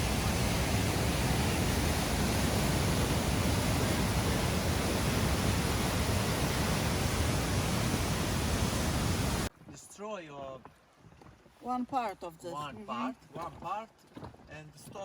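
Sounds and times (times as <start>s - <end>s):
river water rushing: 0.0s - 9.5s.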